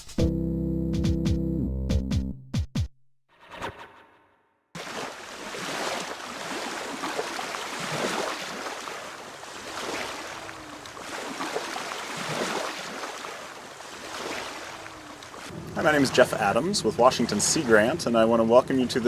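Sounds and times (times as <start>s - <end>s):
small waves washing onto beach: 4.8s - 19.0s.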